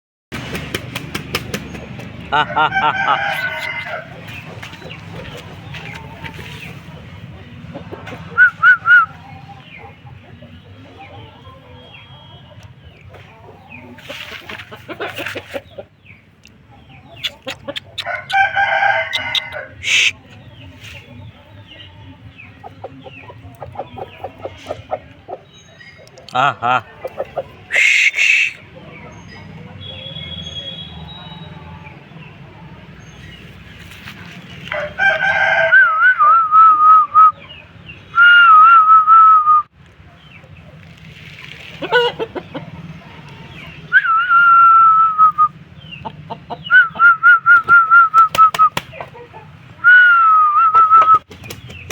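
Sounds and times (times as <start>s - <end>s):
rooster clucking: 0.5s - 16.0s, 16.9s - 30.0s, 33.3s - 38.3s, 40.6s - 51.9s
rooster crowing: 2.4s - 4.2s, 18.0s - 20.1s, 34.7s - 36.4s.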